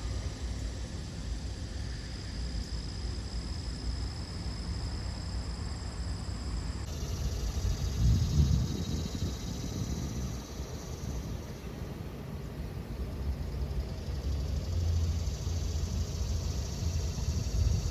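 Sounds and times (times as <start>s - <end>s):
steady low rumble: 6.8s - 17.9s.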